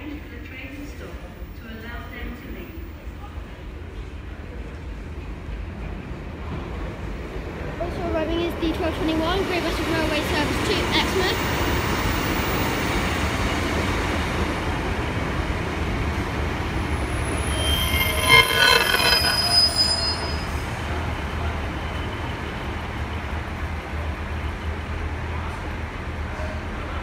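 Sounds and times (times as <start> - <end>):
high ringing wheel squeal: 16.9 - 20.7.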